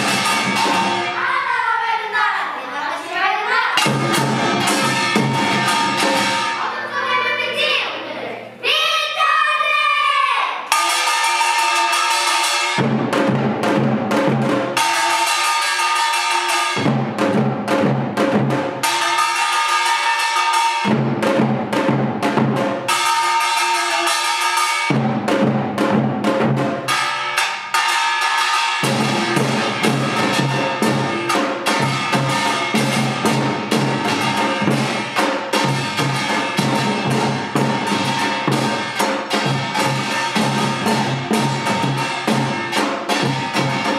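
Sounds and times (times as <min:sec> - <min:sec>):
drums playing: 0:00.0 - 0:02.1, 0:03.7 - 0:07.8, 0:10.7 - 0:43.9
gongs ringing: 0:03.8 - 0:06.8.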